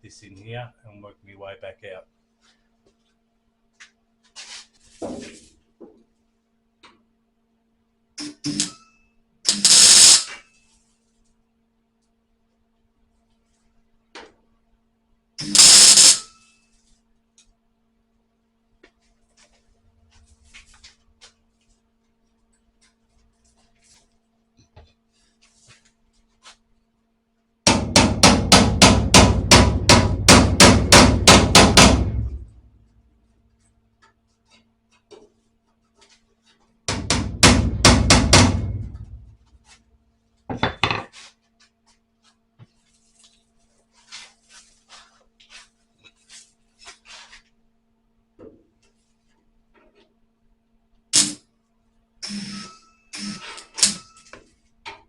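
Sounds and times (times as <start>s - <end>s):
hammer striking sheet steel: 8.2s - 8.9s, 27.7s - 32.5s, 36.9s - 39.3s.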